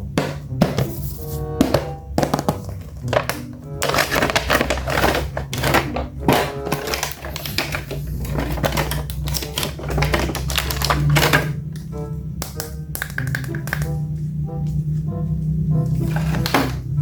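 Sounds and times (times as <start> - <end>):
plastic packaging crackling: 2.0 - 14.0, 15.9 - 17.0.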